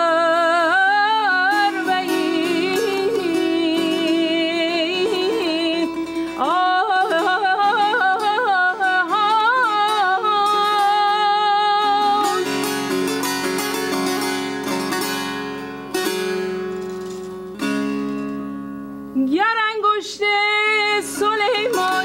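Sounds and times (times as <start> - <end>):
person singing classical vocal: 0.0 - 13.2, 19.2 - 22.0
string instrument notes ringing: 1.5 - 19.3.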